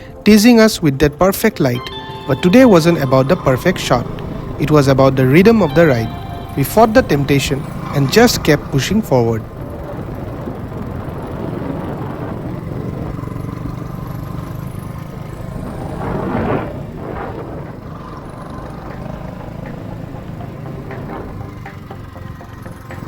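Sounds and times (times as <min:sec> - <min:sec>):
road and wind noise: 0:00.0 - 0:23.0.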